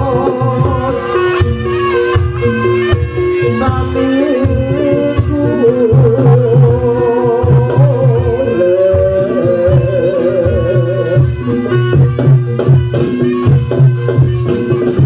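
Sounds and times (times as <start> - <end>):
drums beating steady rhythm: 0.0 - 15.0
sharp percussion strikes: 0.0 - 15.0
wavering melody line: 0.0 - 15.0.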